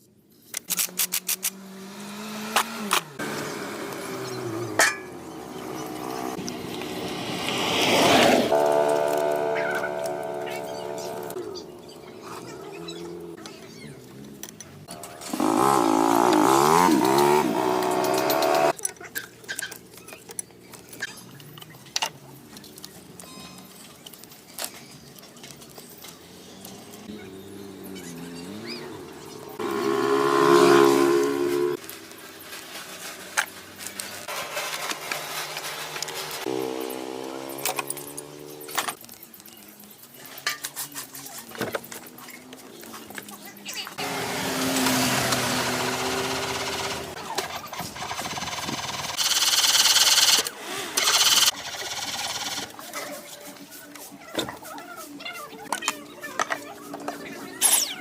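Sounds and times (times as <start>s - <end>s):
engine running: 0.9s - 18.8s, 26.0s - 39.0s, 44.0s - 52.7s.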